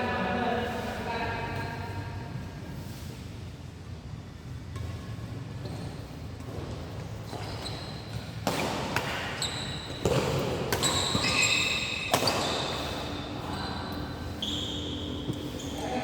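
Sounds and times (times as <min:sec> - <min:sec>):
shoes squeaking on court: 0:04.7 - 0:16.0
racket striking shuttlecock: 0:07.3 - 0:13.0.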